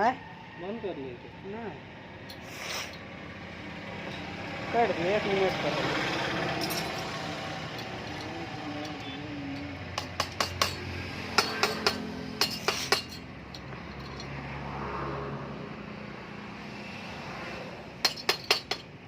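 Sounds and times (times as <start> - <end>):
metal clinks: 6.5 - 14.3, 18.0 - 18.9.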